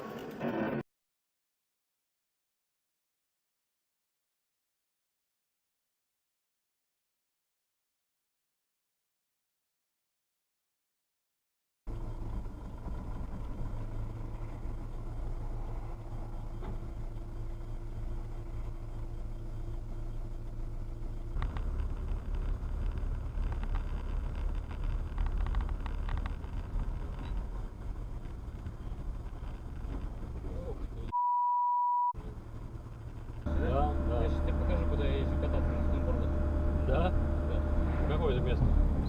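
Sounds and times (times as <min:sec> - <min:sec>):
car road and engine rumble: 0:11.9 - 0:31.2, 0:32.1 - 0:39.0
high-pitched beep: 0:31.1 - 0:32.2.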